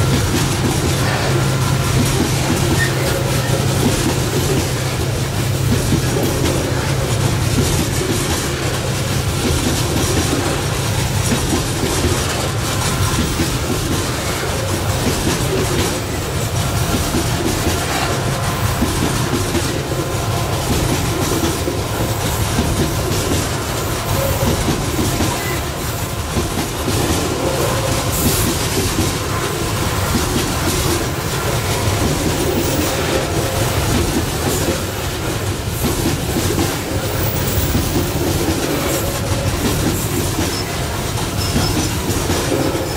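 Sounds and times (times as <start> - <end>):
train wheels clattering over rail joints: 0.0 - 42.9.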